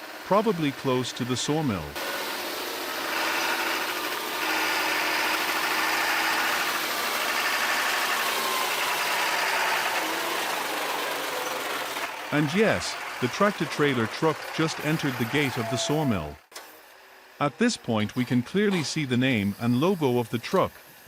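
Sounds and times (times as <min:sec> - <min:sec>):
truck diesel engine running: 0:00.0 - 0:16.4
road and tyre noise: 0:01.5 - 0:17.4.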